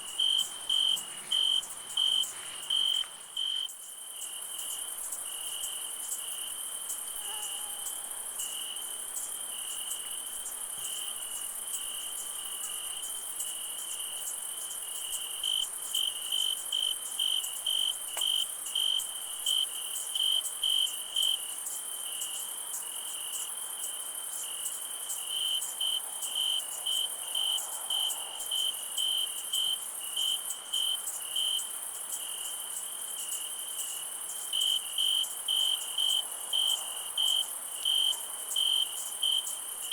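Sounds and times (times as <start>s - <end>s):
cricket chirping in pulses: 0.0s - 13.6s
crickets trilling: 0.0s - 39.9s
high insect hiss: 0.0s - 39.9s.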